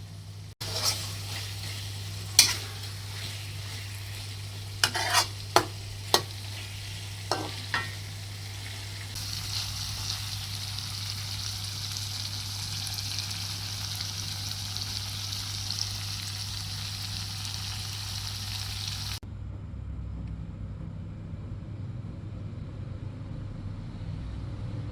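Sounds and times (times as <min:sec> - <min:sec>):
chicken sizzling in a pan: 0:00.0 - 0:19.2
utensil knocking against pan: 0:04.8 - 0:06.3.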